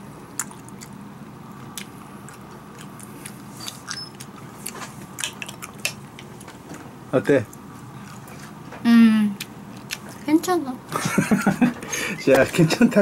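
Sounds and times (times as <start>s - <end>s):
steady low hum: 0.0s - 13.0s
child chewing: 0.2s - 6.8s, 7.5s - 8.6s, 9.4s - 10.6s.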